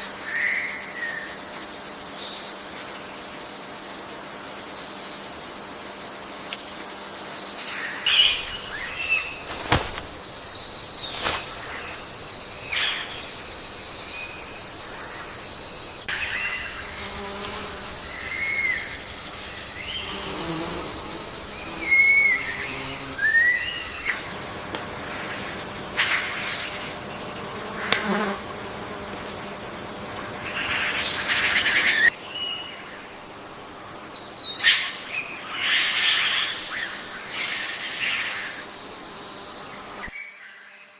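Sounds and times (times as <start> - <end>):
high-pitched insect drone: 0.0 - 25.6.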